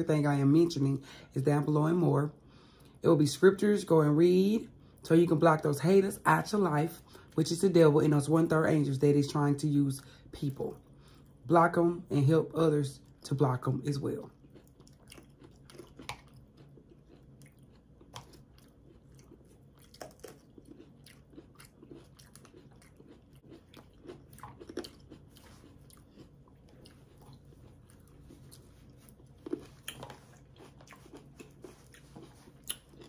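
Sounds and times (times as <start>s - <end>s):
people chewing and crunching food: 10.0s - 11.5s, 13.0s - 33.0s.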